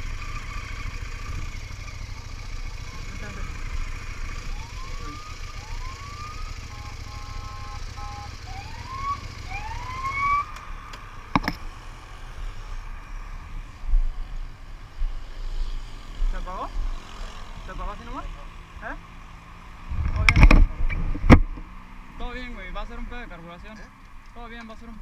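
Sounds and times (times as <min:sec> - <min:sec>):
electronic siren whooping: 0:04.2 - 0:10.8
low rumble: 0:19.9 - 0:21.6.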